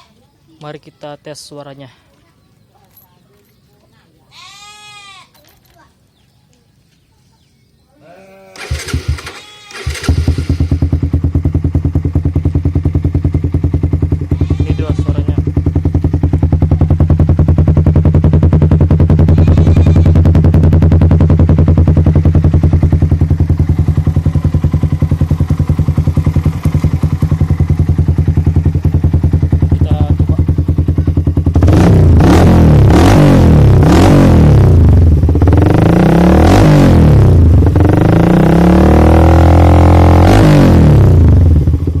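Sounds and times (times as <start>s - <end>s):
motorcycle engine idling and revving: 8.6s - 42.0s.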